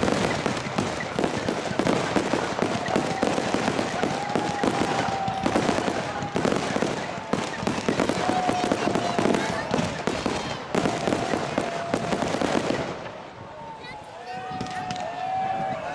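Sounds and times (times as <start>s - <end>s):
firework whistling: 0.0s - 13.1s
firework bursts and crackling: 0.0s - 15.9s.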